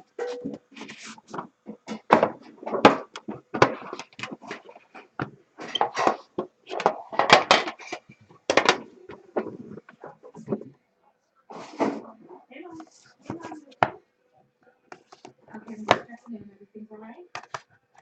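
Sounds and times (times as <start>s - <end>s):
rustling of handled things: 0.0s - 10.8s, 11.5s - 14.0s
objects knocking and clacking: 1.3s - 10.8s.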